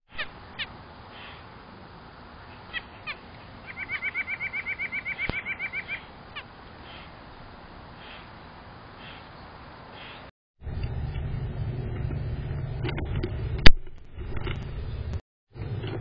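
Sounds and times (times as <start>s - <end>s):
rapid bird trill: 0.1s - 1.5s, 2.4s - 7.2s, 8.0s - 8.4s, 9.0s - 9.4s
songbirds chirping: 0.1s - 10.3s.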